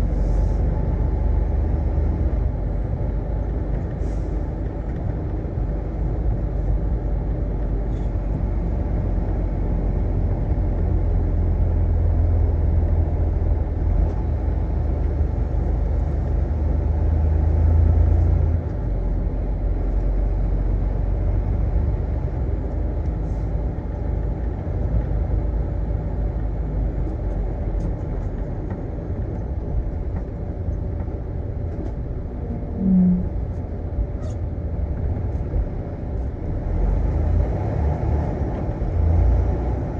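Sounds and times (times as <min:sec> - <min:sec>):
semi truck engine and road rumble: 0:00.0 - 0:39.9
short low tone: 0:32.3 - 0:33.6.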